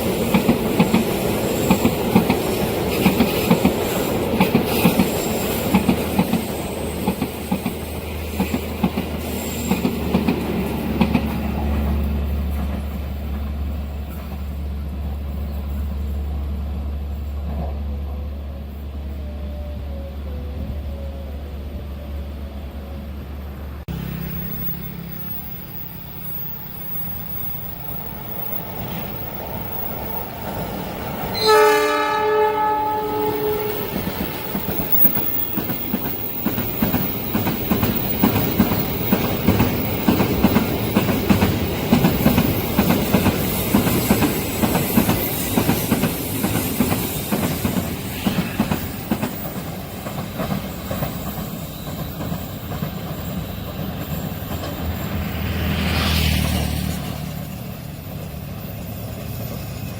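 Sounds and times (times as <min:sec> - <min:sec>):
train wheels clickety-clack: 0:00.0 - 0:16.4, 0:27.0 - 0:31.8, 0:33.1 - 0:59.9
train horn blast: 0:31.2 - 0:35.0, 0:48.0 - 0:49.0.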